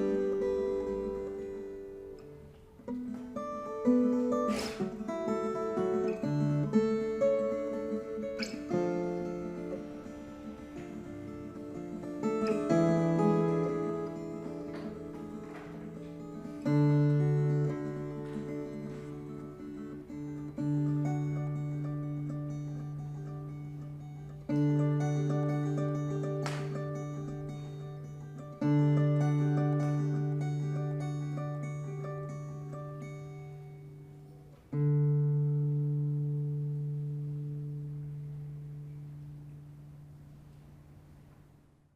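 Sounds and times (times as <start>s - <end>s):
ten-string guitar playing slowly: 0.0s - 41.7s.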